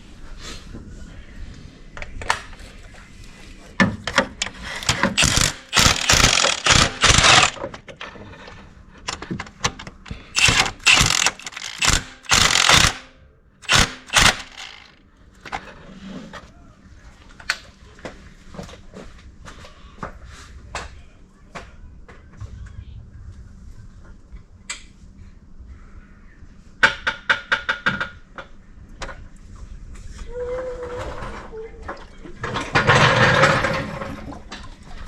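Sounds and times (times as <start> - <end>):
ratchet wrench clicking: 4.7 - 7.6, 10.4 - 14.9.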